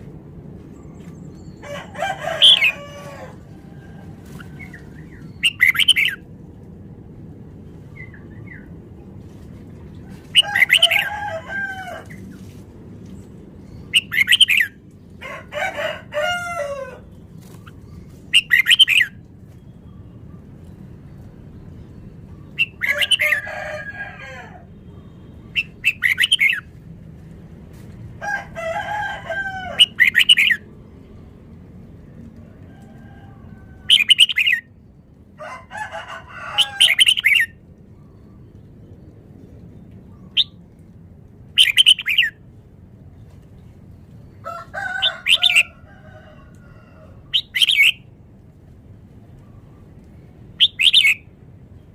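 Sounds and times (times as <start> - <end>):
bird warbling: 1.8 - 3.4, 5.3 - 6.2, 10.3 - 11.2, 50.6 - 51.3.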